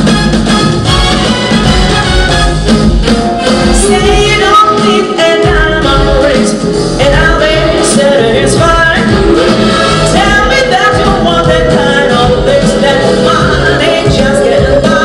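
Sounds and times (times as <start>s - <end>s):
live band playing pop: 0.0s - 15.0s
person singing: 3.4s - 15.0s.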